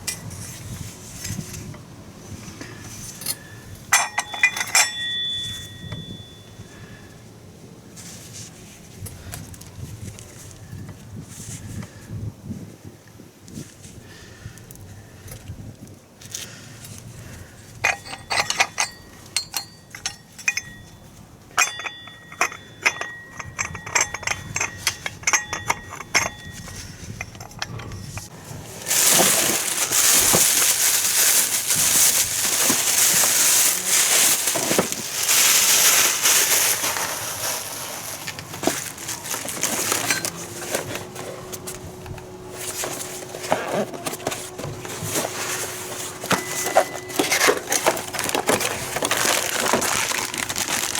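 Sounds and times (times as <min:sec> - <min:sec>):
metal tools clinking: 0:02.7 - 0:06.6, 0:17.8 - 0:50.9.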